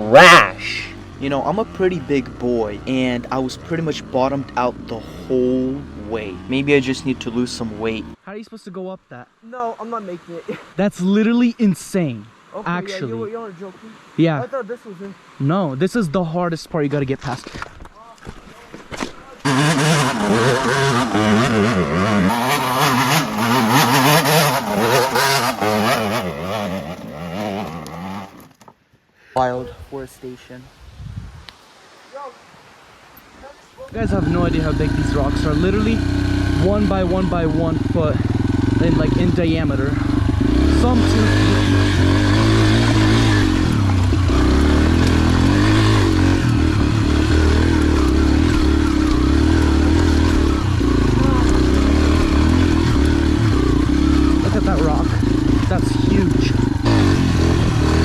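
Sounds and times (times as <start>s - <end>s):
dirt bike engine revving: 0.0s - 8.2s, 19.4s - 28.6s, 33.9s - 58.0s.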